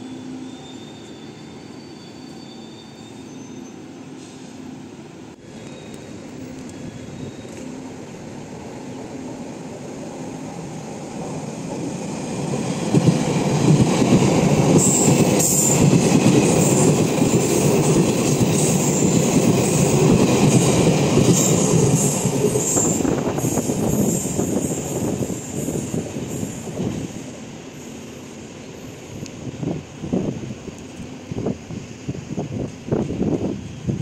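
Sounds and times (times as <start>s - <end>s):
wheel squeal: 0.0s - 3.9s, 6.7s - 7.8s
electric train rumbling past: 0.0s - 34.0s.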